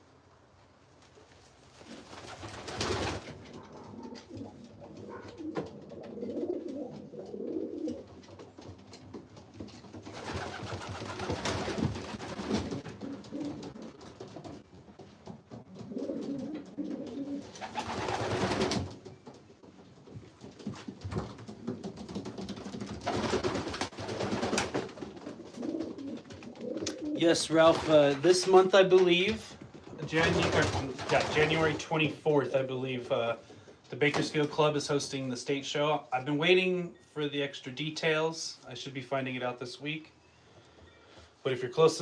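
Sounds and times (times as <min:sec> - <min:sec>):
pigeons cooing: 0:03.4 - 0:08.6, 0:10.1 - 0:14.0, 0:15.7 - 0:18.3, 0:25.2 - 0:27.3.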